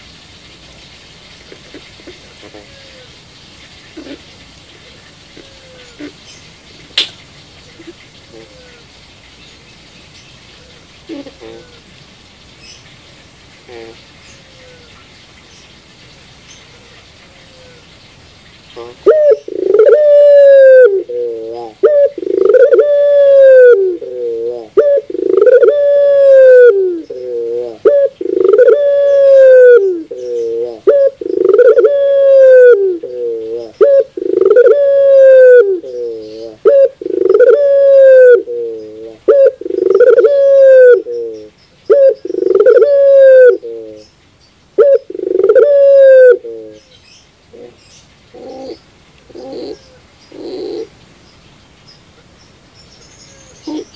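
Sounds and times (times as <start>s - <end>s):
dove cooing: 1.5s - 3.2s, 3.9s - 6.3s, 7.6s - 8.8s, 10.6s - 11.8s, 18.8s - 44.0s, 44.8s - 46.9s, 47.5s - 50.9s, 53.6s - 53.9s.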